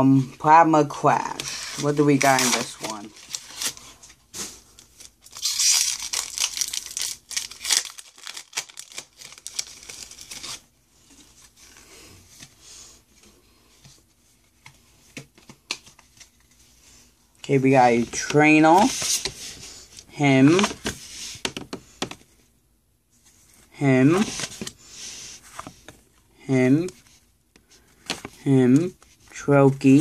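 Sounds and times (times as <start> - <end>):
cards rustling and clicking: 1.3 - 11.8, 13.8 - 16.7
foil wrapper tearing and crinkling: 5.0 - 10.6.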